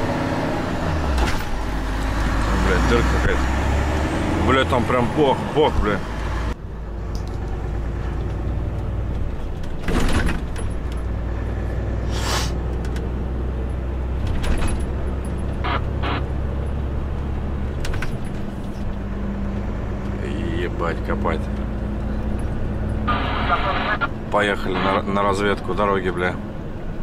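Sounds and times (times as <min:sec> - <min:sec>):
truck diesel engine running: 0:00.0 - 0:09.8, 0:10.4 - 0:25.8
knocks and rattles: 0:07.2 - 0:11.2, 0:14.2 - 0:15.6, 0:17.7 - 0:19.0
brief hiss: 0:12.1 - 0:12.6.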